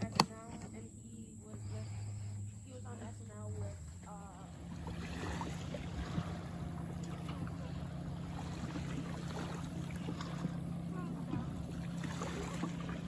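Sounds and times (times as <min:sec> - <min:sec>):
low motor hum: 0:00.0 - 0:13.0
faint voices: 0:10.8 - 0:11.7.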